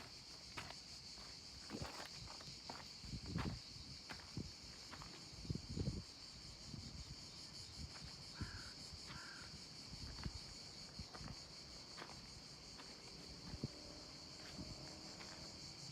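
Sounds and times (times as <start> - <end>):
high insect buzz: 0.0 - 15.9
crow cawing: 8.3 - 9.5.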